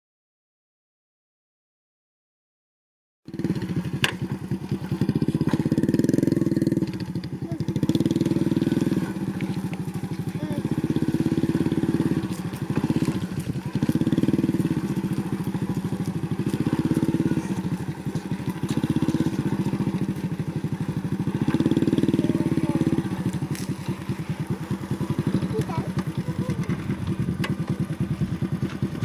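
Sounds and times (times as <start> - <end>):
motorcycle engine running: 3.3 - 29.0.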